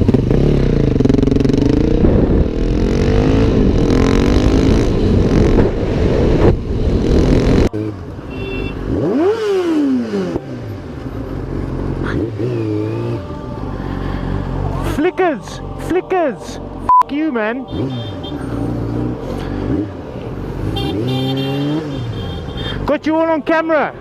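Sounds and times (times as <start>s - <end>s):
motorcycle engines revving: 0.0s - 24.0s.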